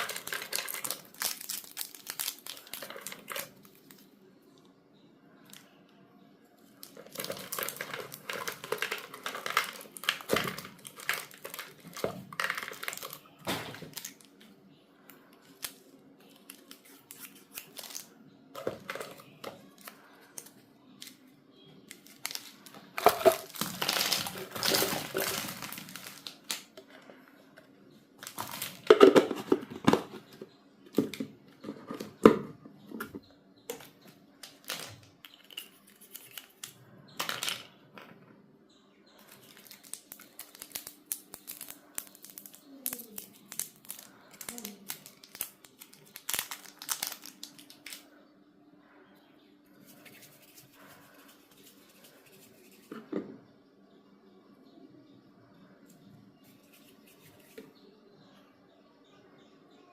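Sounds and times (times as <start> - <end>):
packaging crinkled and torn open: 0.0 - 4.0, 6.8 - 14.3, 15.5 - 18.1, 21.9 - 26.7, 28.2 - 29.1, 34.4 - 36.8, 39.2 - 48.0.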